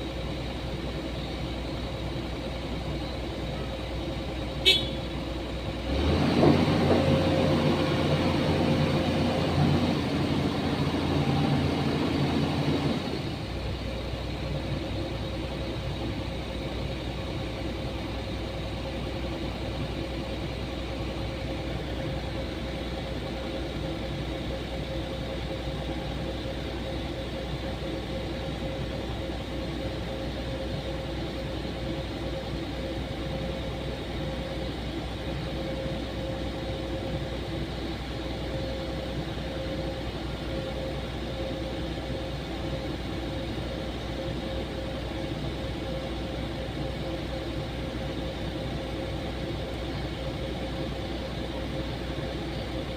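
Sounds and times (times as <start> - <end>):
heavy machinery engine running: 0.0 - 52.9.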